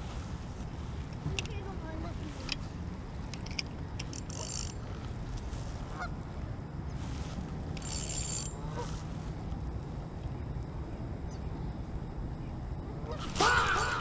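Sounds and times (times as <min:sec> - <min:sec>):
steady low rumble: 0:00.0 - 0:13.3
geese honking faintly: 0:05.8 - 0:06.2, 0:08.6 - 0:09.0.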